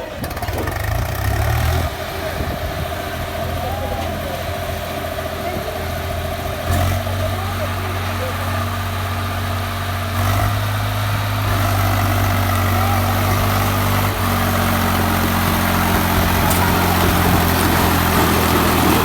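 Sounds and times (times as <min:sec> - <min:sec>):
diesel tractor engine running: 0:00.0 - 0:19.0.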